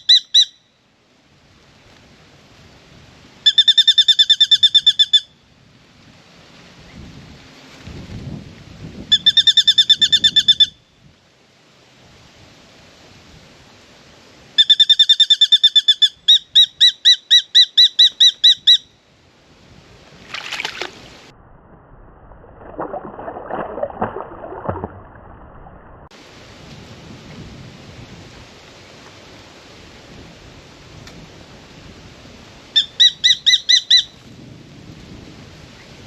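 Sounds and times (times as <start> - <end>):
bird calling repeated clear notes: 0.0 - 0.8, 3.4 - 5.5, 9.1 - 11.0, 14.6 - 19.0, 32.8 - 34.2.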